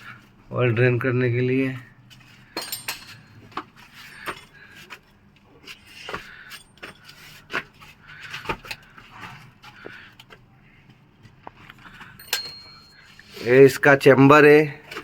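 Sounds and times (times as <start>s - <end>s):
metal hand tools clinking: 2.6s - 4.6s, 12.2s - 13.4s.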